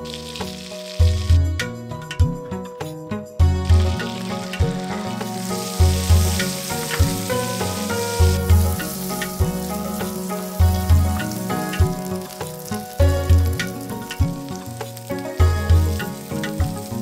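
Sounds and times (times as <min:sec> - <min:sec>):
shallots sizzling in hot oil: 0:00.0 - 0:01.4, 0:03.4 - 0:17.0
background music with deep beat: 0:00.0 - 0:17.0.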